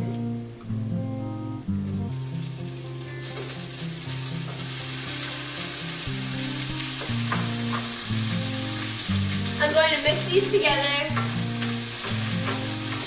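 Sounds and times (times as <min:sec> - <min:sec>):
food sizzling in a skillet: 0:00.0 - 0:13.0.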